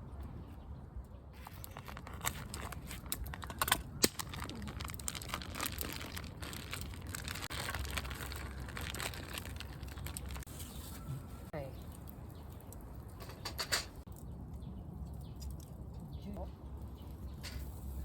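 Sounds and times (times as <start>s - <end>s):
crinkling and rustling: 1.3s - 14.1s.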